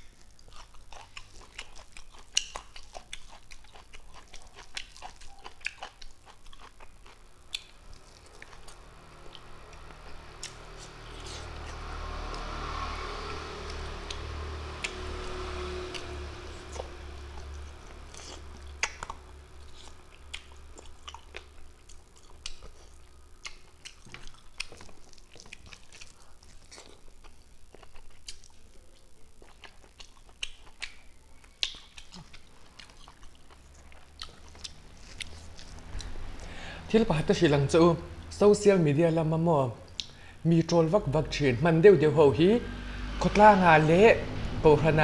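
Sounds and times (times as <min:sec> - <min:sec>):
man chewing and lip-smacking: 0:00.1 - 0:12.7, 0:13.6 - 0:36.5, 0:39.9 - 0:40.2.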